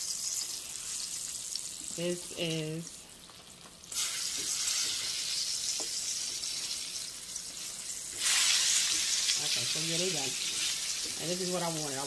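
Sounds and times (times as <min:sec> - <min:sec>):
fish sizzling in hot oil: 0:00.0 - 0:12.0
spatula turning fish in pan: 0:03.2 - 0:12.0.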